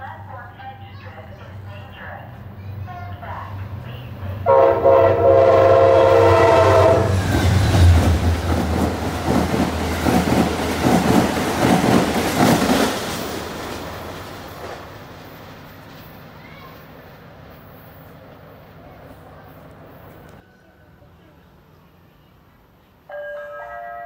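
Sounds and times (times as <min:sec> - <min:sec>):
train horn chord: 0:04.4 - 0:07.3, 0:23.1 - 0:24.0
train wheels clacking over rail joints: 0:07.1 - 0:16.2.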